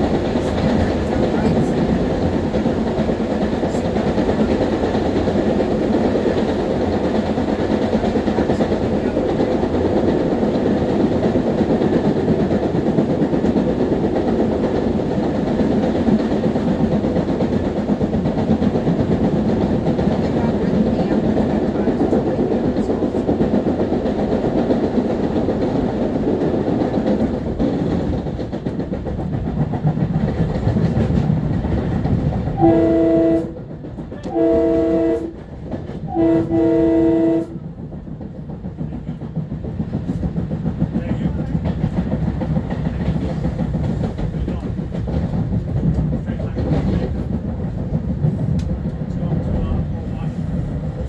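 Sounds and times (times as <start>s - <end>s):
electric train rumbling on rails: 0.0s - 51.0s
train horn: 32.6s - 37.7s.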